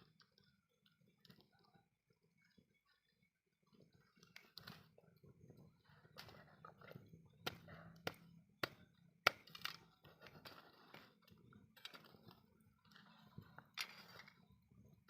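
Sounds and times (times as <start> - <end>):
wood fire crackling and popping: 5.6 - 14.3.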